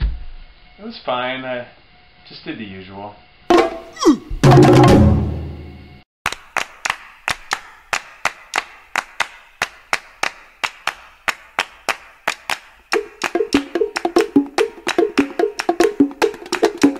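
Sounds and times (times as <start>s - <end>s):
wooden percussion clicking: 12.3s - 16.9s
pitched musical notes: 12.9s - 16.9s.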